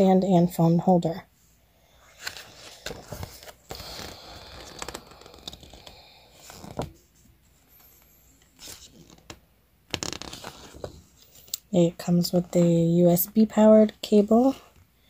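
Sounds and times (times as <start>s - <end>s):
packaging rustling and tearing: 2.2s - 6.9s, 8.6s - 11.4s.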